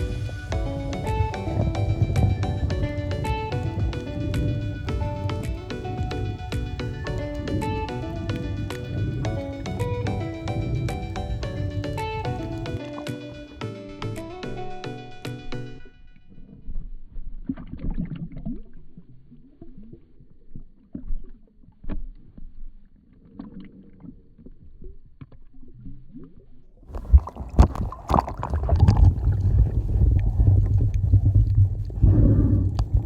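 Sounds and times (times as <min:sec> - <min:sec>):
water washing over microphone: 0:00.0 - 0:13.1, 0:25.6 - 0:33.0
soft water splashing: 0:00.0 - 0:13.4, 0:16.7 - 0:33.0.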